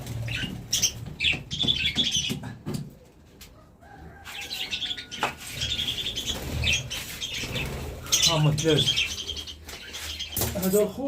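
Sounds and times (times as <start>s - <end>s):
small birds chirping: 0.0s - 11.0s
wings flapping: 5.3s - 10.8s.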